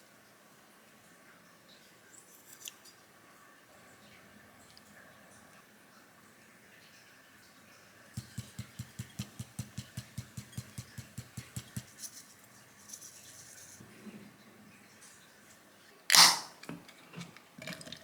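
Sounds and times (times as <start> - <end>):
knife chopping on cutting board: 8.2 - 12.0.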